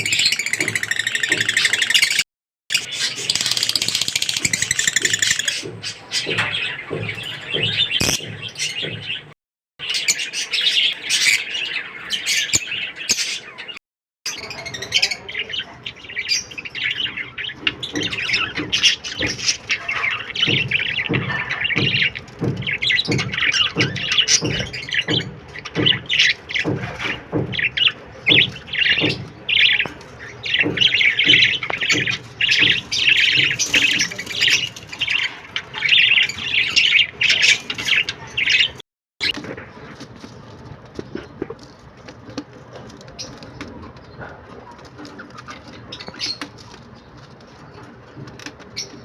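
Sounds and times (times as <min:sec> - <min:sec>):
parrots chirping and squawking: 0:00.0 - 0:49.0.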